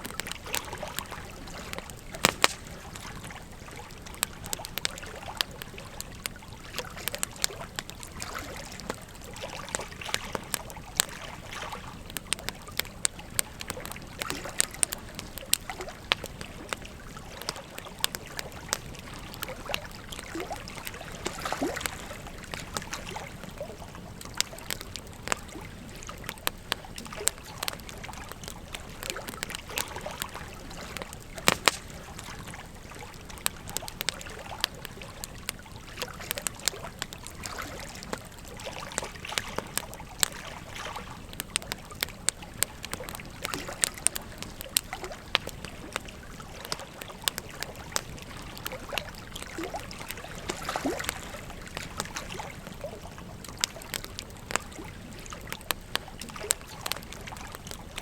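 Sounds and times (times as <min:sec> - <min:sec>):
wood fire crackling and popping: 0:00.0 - 0:58.0
river rushing and trickling: 0:15.7 - 0:23.6, 0:42.8 - 0:55.6.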